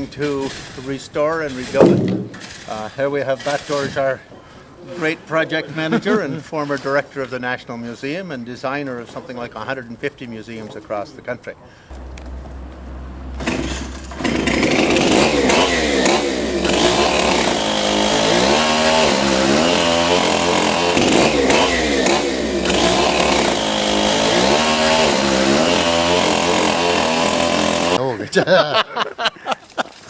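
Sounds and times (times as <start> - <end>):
chainsaw engine revving: 1.5 - 2.8, 13.3 - 28.0.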